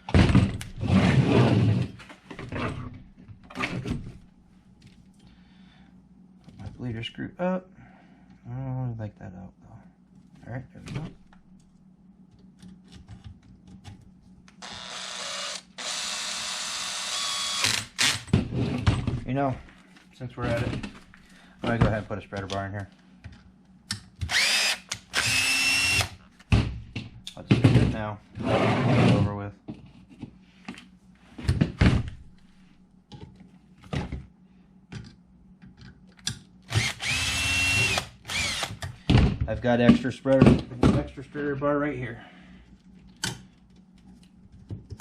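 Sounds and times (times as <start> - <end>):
power driver running: 14.6 - 18.3, 24.2 - 26.2, 36.7 - 38.9.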